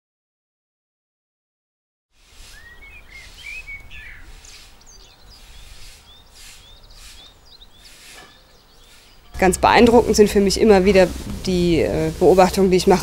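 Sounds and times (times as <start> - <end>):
small birds chirping: 2.2 - 13.0.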